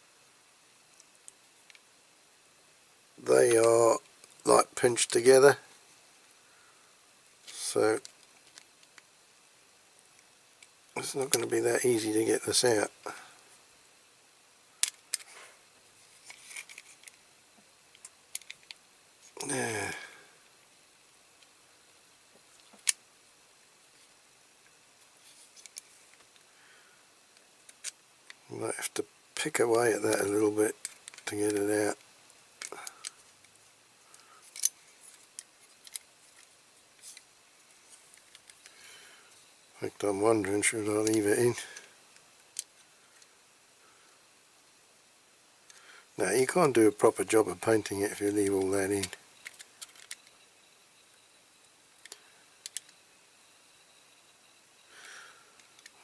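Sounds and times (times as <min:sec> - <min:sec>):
metal toy parts ticking and scraping: 0:14.8 - 0:15.4, 0:16.1 - 0:17.2, 0:29.6 - 0:32.0, 0:34.1 - 0:37.2, 0:47.7 - 0:50.3.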